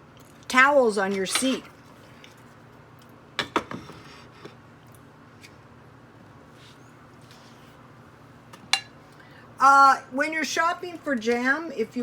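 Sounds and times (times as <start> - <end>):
dishes clicking and tapping: 8.6 - 8.9.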